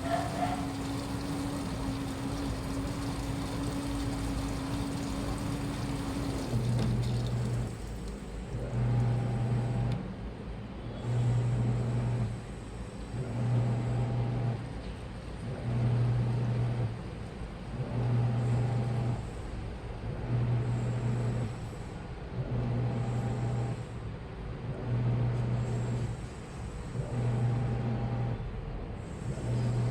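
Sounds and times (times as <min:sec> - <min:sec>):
washing machine motor humming: 0:00.0 - 0:10.0, 0:15.4 - 0:19.2.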